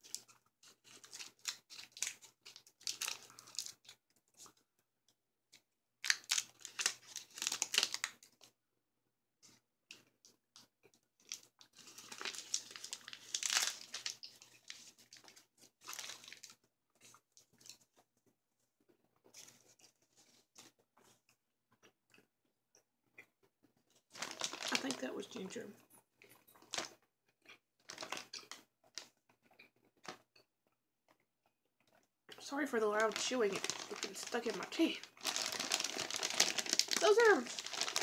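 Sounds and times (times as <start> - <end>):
candy wrapper crinkling: 0.0 - 4.6, 6.0 - 8.5, 11.2 - 17.8, 24.0 - 25.6, 26.6 - 27.0, 27.8 - 29.2, 32.4 - 38.0.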